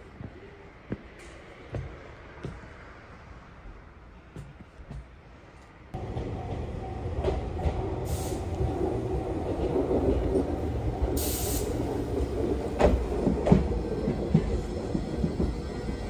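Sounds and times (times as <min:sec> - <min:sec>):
train wheels rumbling on rail: 0:04.2 - 0:16.0.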